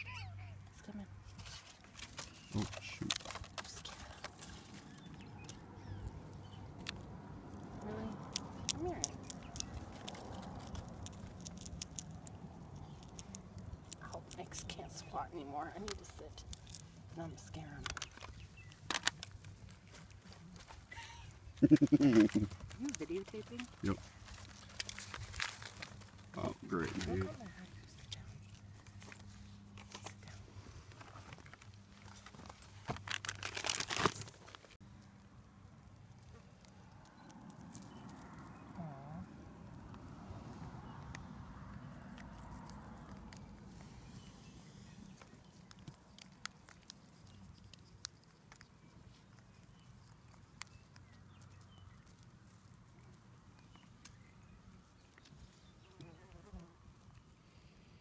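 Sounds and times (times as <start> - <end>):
low steady hum: 0.0 - 33.4
crinkling and rustling handling: 0.8 - 38.8
dense crackles: 1.9 - 20.9, 21.5 - 34.8.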